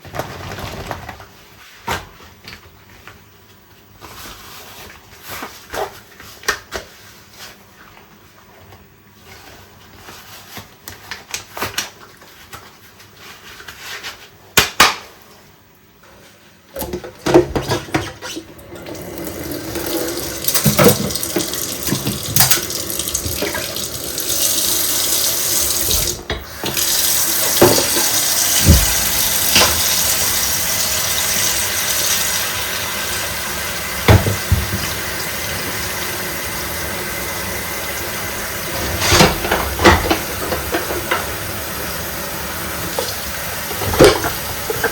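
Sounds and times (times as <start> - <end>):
tap water running into sink: 16.8 - 44.9.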